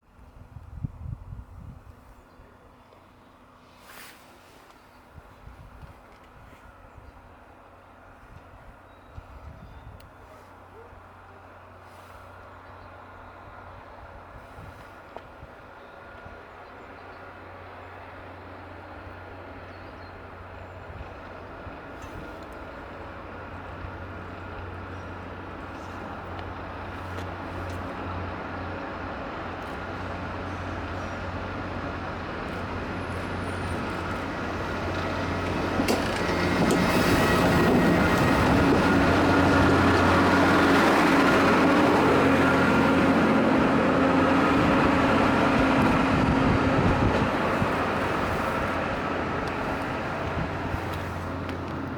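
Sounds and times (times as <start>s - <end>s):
low train hum: 0.0s - 51.9s
harsh rushing rail grinding: 30.0s - 51.9s.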